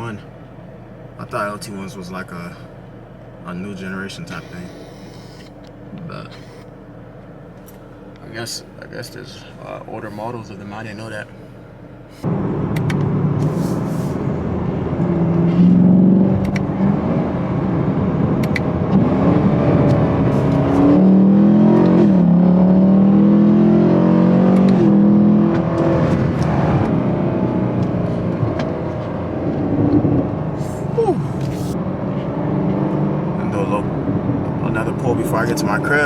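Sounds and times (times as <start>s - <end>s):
car engine accelerating hard: 12.2s - 36.0s.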